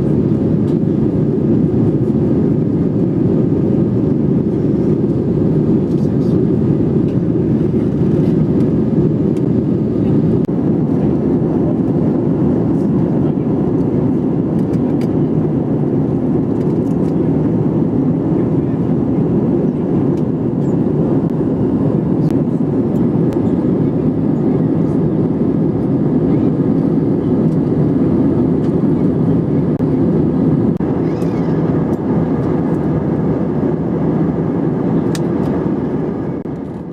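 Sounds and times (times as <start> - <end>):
jet airliner cabin rumble: 0.0 - 36.9.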